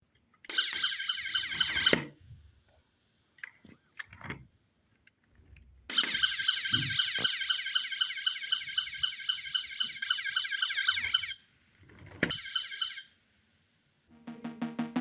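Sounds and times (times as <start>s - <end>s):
toy electronic siren warbling: 0.5s - 2.0s, 5.9s - 11.4s, 12.3s - 13.1s.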